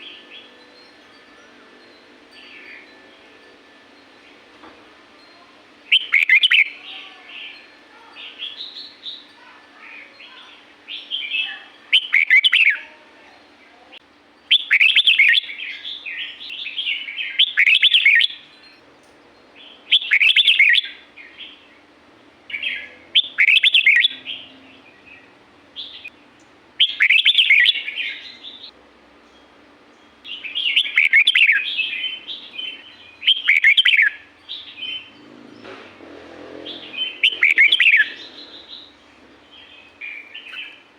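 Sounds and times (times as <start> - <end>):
soft bird chirps: 5.2 - 21.9, 22.5 - 35.8, 36.6 - 40.9
bird warbling song: 5.9 - 12.9, 14.5 - 18.8, 19.6 - 21.9, 22.5 - 36.0, 36.6 - 40.9.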